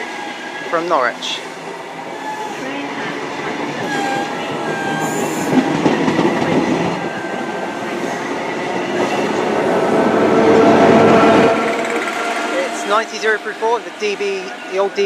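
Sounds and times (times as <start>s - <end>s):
train wheels rumbling and clattering: 0.0s - 15.0s.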